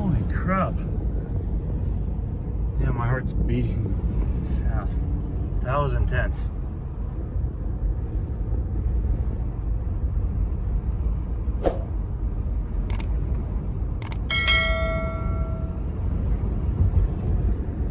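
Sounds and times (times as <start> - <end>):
car engine and road noise: 0.0 - 17.9
sharp clicks: 12.8 - 13.2, 14.0 - 14.3.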